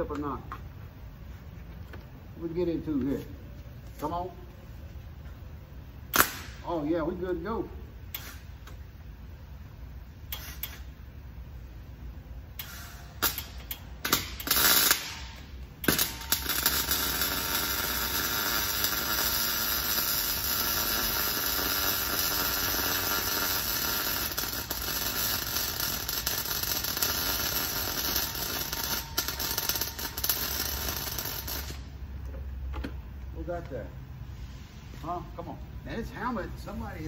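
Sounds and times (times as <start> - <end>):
welder arc crackling: 12.6 - 32.0.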